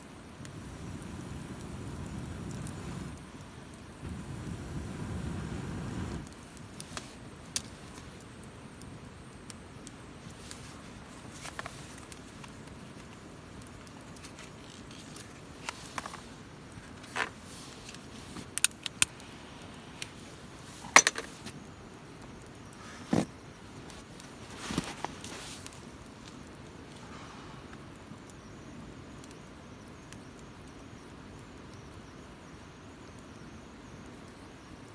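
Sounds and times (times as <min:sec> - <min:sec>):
low steady hiss: 0:00.0 - 0:34.9
sharp clicks and snaps: 0:17.9 - 0:20.1.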